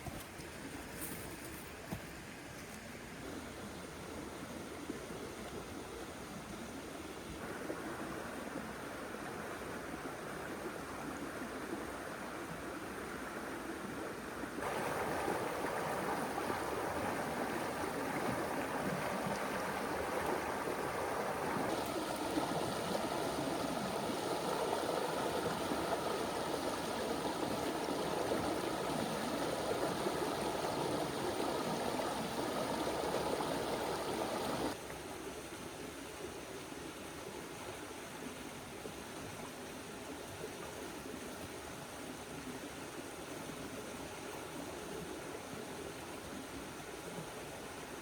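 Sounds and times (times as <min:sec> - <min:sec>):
river water rushing: 0:14.2 - 0:35.4.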